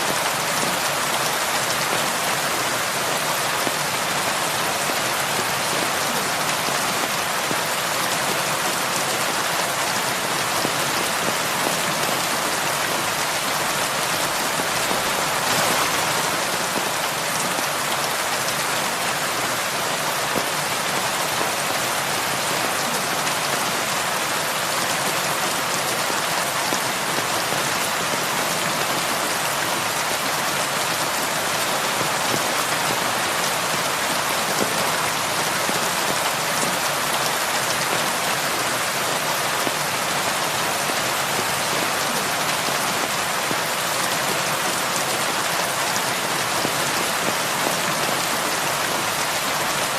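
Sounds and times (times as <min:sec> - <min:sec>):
heavy rain falling: 0:00.0 - 0:49.9.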